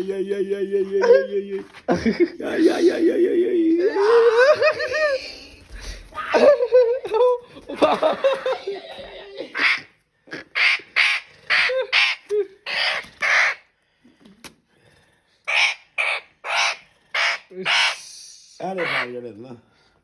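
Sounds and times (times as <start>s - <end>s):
parrot squawking: 9.4s - 13.6s, 15.5s - 18.0s, 18.6s - 19.2s.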